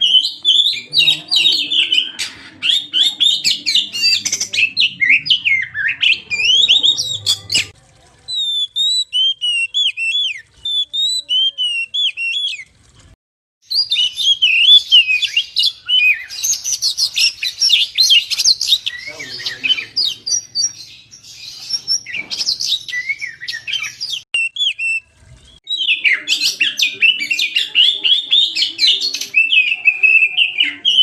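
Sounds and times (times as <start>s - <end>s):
bird chirping and warbling: 0.0s - 12.8s, 13.7s - 31.0s
clear whistled bird notes: 13.7s - 31.0s.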